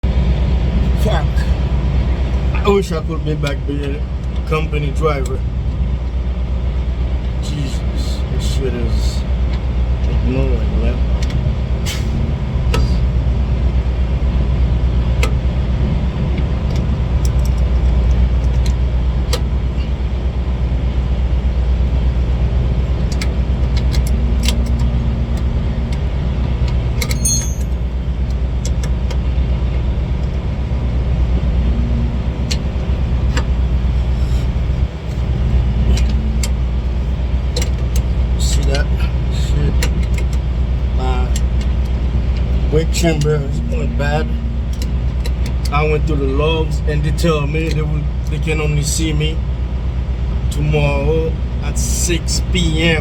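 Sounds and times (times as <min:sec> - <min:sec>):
diesel truck engine idling: 0:00.0 - 0:53.0
metallic clinking: 0:27.0 - 0:27.9.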